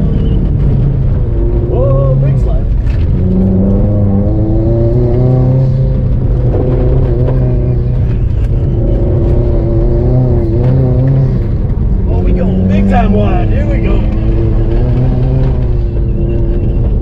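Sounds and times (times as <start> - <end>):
car engine pulling hard: 0.0 - 17.0
road noise on dirt: 0.0 - 17.0.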